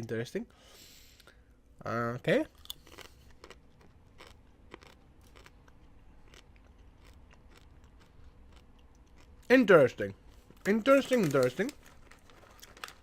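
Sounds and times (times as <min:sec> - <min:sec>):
crunchy chips being chewed: 0:02.5 - 0:09.5, 0:10.2 - 0:13.0.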